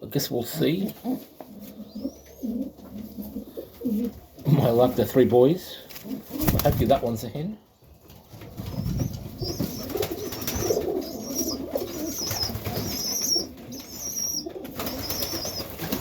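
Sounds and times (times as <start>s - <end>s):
pigeons cooing: 0.6s - 4.8s, 6.0s - 6.6s, 8.3s - 16.0s.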